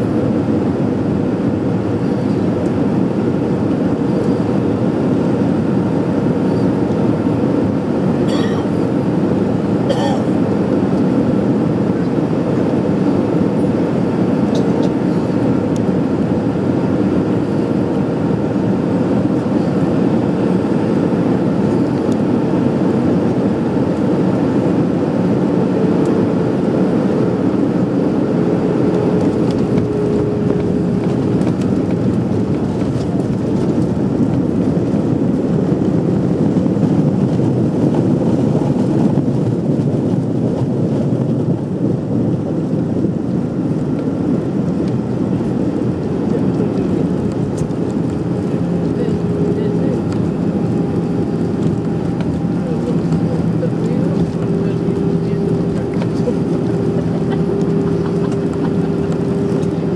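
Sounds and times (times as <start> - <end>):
airplane engines and airflow rumble: 0.0 - 59.9.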